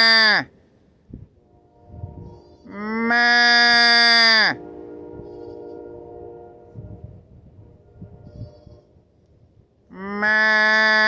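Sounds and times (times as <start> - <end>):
goat bleating: 0.0 - 0.5, 2.5 - 4.5, 9.9 - 11.0.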